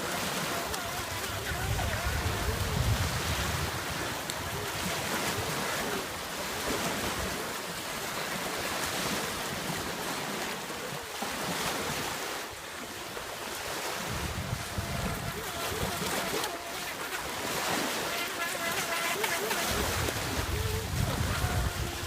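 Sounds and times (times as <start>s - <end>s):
surf washing on shore: 0.0s - 22.0s
wind buffeting microphone: 0.8s - 5.7s, 14.0s - 16.4s, 19.6s - 22.0s.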